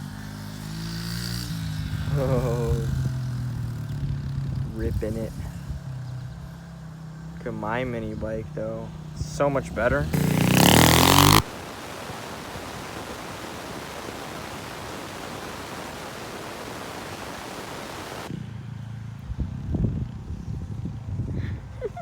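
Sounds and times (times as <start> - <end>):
mini bike engine: 0.0 - 21.8
steady hiss: 7.5 - 18.3.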